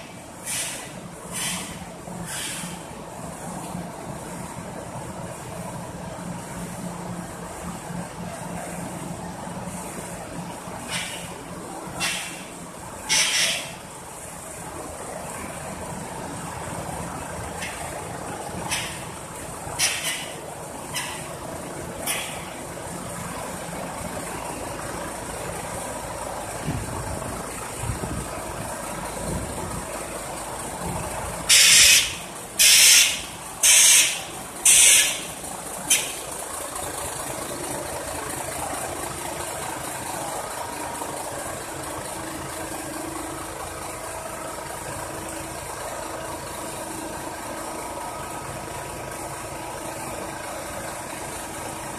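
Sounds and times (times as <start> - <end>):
truck engine idling: 0.0 - 51.9
air release hisses: 0.4 - 2.8.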